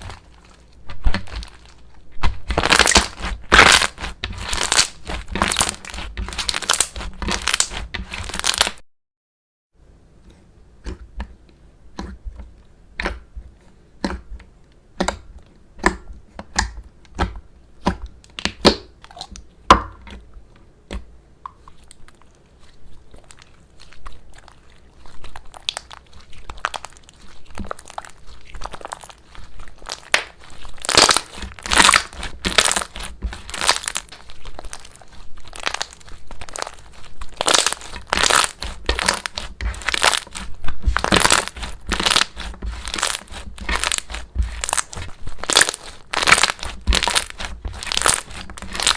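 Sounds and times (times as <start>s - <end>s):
slime clicking and crackling: 0.0s - 8.8s, 20.9s - 48.9s.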